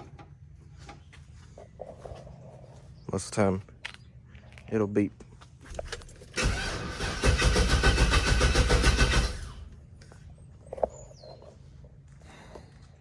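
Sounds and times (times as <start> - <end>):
starter cranking engine: 5.7 - 9.8.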